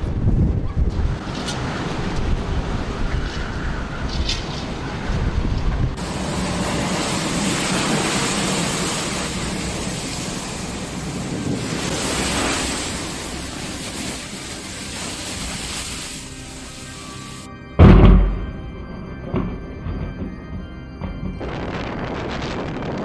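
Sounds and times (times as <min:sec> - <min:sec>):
storm wind: 0:00.0 - 0:23.0
surf rushing: 0:06.0 - 0:17.5.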